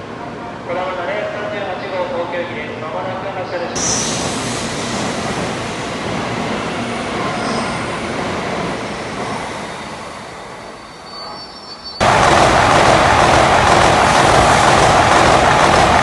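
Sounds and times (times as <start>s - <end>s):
train passing close by: 0.0s - 16.0s
train rushing past: 3.7s - 16.0s.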